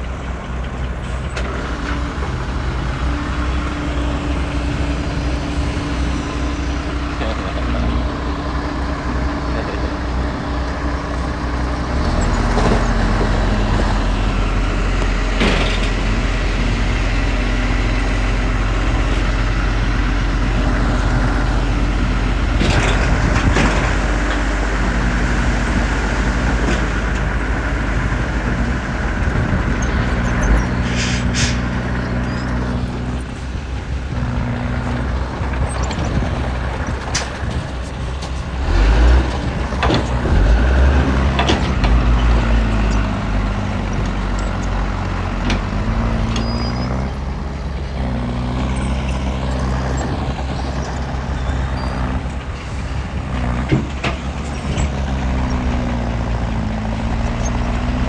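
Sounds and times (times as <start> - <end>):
heavy diesel engine running: 0.0 - 58.0
metallic clanks and knocks: 15.3 - 16.1.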